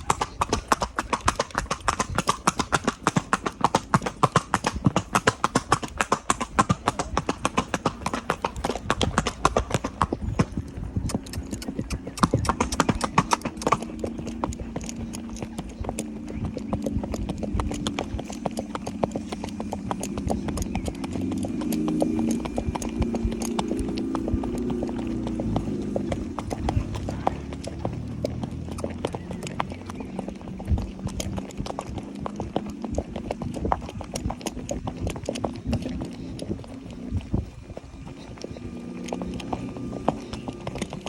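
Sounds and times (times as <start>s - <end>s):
hooves clip-clopping on street: 0.0s - 41.0s
steady low hum: 4.8s - 28.6s.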